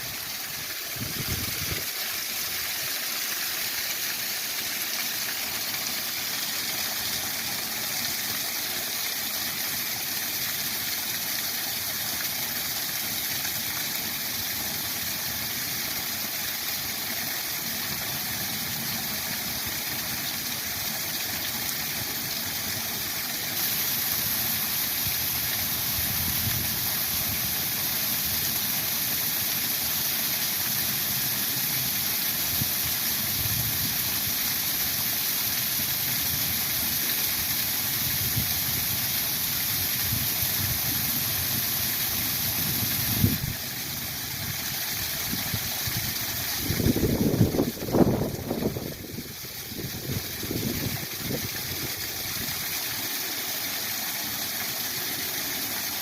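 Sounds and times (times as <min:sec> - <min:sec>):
waterfall rushing: 0:33.7 - 0:56.0.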